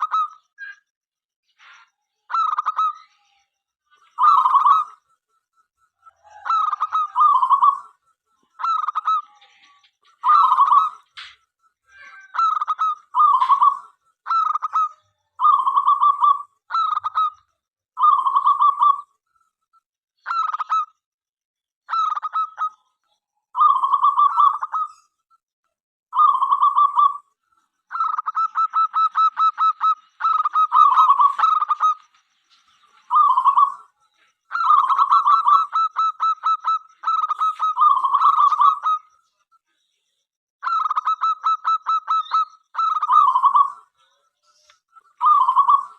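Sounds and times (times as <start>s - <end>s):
dove cooing: 6.0s - 8.0s, 10.2s - 11.0s, 12.3s - 17.4s, 18.0s - 19.0s, 23.6s - 25.0s, 26.2s - 27.3s, 27.9s - 32.0s, 33.1s - 33.9s, 34.5s - 39.1s, 40.6s - 43.8s, 45.2s - 45.9s.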